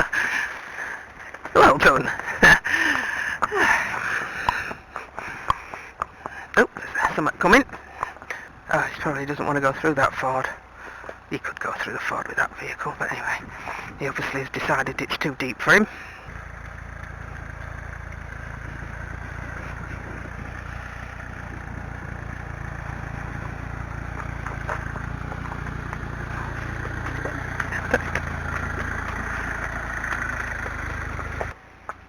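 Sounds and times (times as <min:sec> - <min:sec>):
motor vehicle engine running: 0:00.0 - 0:32.0.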